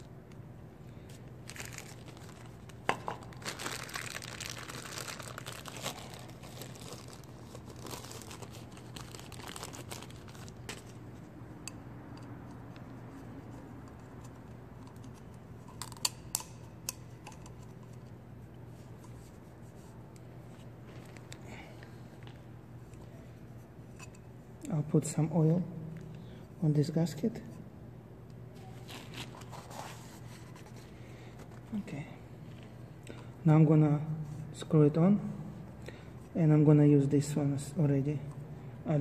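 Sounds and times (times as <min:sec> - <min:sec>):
plastic crinkling and rustling: 0:01.1 - 0:11.0.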